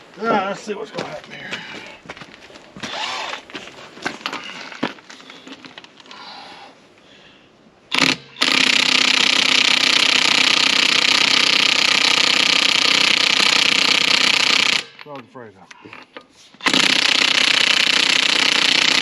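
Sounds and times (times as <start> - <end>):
impact wrench rattling: 7.9 - 15.1.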